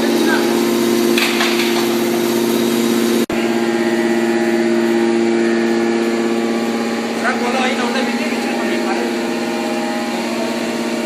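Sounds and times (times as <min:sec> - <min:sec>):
hydraulic power unit humming: 0:00.0 - 0:11.0.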